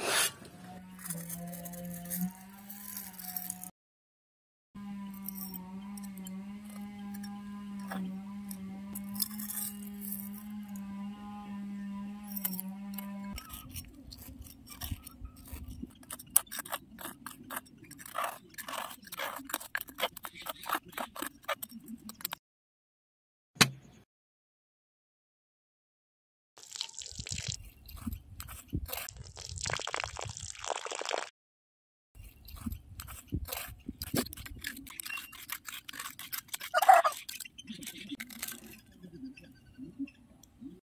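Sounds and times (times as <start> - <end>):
metal trowel scraping grit: 0.0 - 3.7, 4.9 - 22.3, 32.2 - 38.9.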